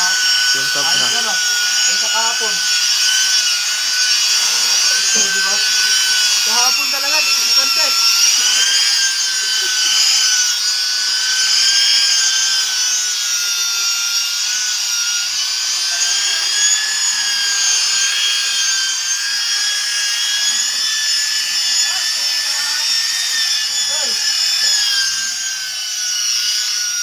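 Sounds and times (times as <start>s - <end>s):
power sander whining: 0.0s - 27.0s.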